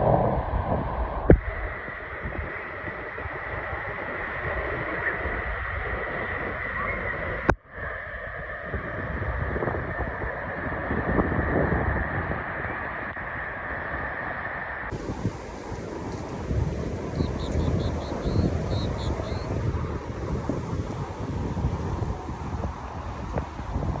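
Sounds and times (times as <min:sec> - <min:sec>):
faint steady whine: 0:14.9 - 0:24.0
water noise: 0:14.9 - 0:24.0
wind rushing: 0:14.9 - 0:24.0.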